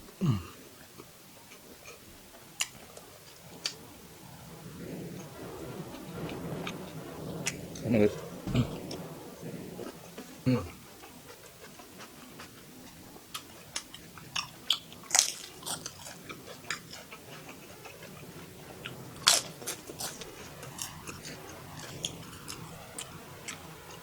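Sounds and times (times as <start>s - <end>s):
person crunching while chewing: 13.3s - 18.2s, 18.8s - 20.2s.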